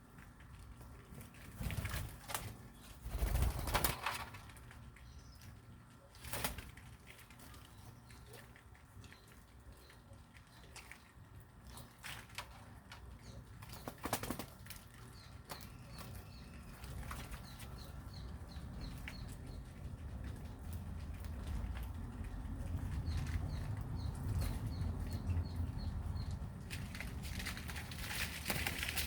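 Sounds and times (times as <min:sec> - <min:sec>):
wing flaps: 0:01.5 - 0:04.4.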